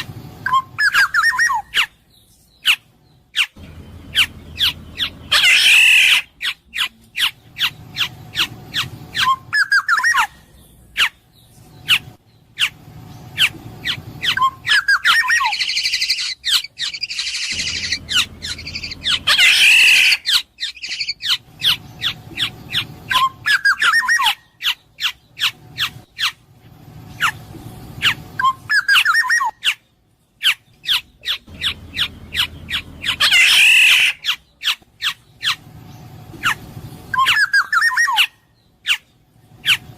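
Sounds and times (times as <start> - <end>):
bird chips: 0.0 - 26.4
harsh rasping bird calls: 0.0 - 39.9
fluty whistled bird phrases: 0.4 - 1.7, 4.2 - 11.1, 14.2 - 24.4, 28.4 - 29.7, 37.1 - 38.3.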